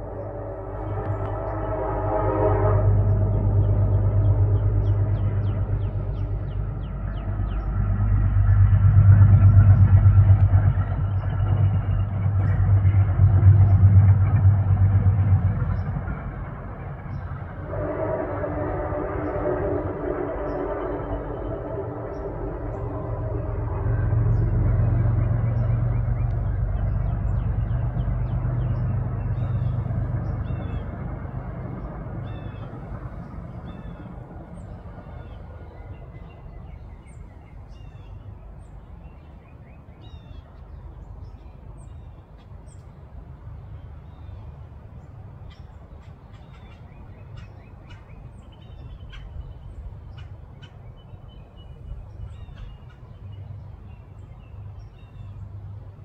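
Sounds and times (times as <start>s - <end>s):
low rumble: 0.0s - 38.7s.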